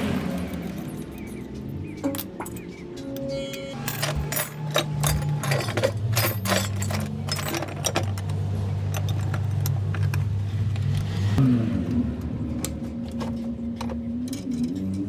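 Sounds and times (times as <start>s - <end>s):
motorcycle engine running: 0.0s - 2.8s.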